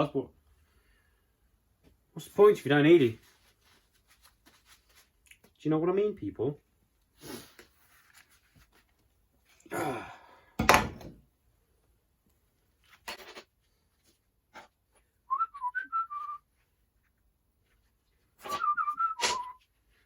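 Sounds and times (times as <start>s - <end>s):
person whistling a tune: 15.3s - 16.4s, 18.4s - 19.6s.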